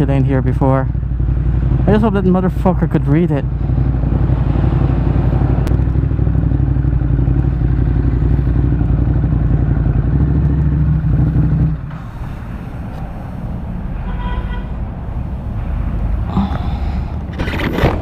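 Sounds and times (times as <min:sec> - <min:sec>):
motorcycle engine running: 0:00.0 - 0:12.0
road noise: 0:00.0 - 0:18.0.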